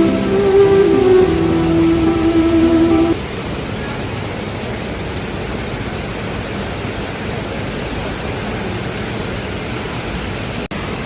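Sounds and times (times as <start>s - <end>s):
waterfall rushing: 0.0s - 3.2s.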